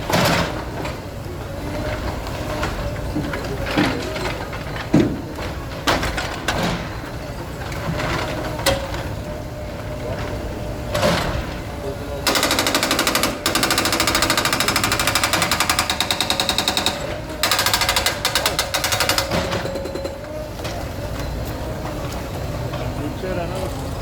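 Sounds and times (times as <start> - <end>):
demolition breaker hammering concrete: 12.2 - 20.3.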